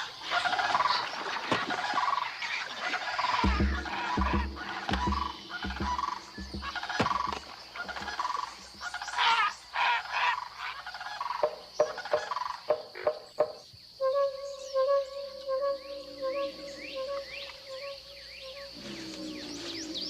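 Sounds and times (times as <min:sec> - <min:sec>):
frogs and insects calling: 0:00.0 - 0:20.0
steady held tone: 0:03.4 - 0:07.4.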